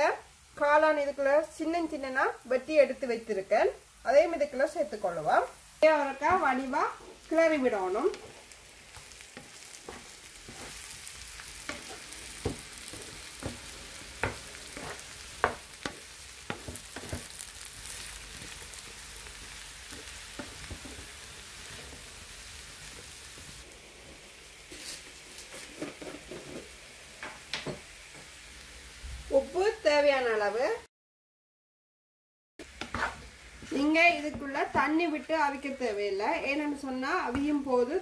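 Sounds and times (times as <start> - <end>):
vegetables sizzling in a pan: 0.0 - 30.9, 32.6 - 38.0
utensil scraping and knocking pan: 11.6 - 17.3.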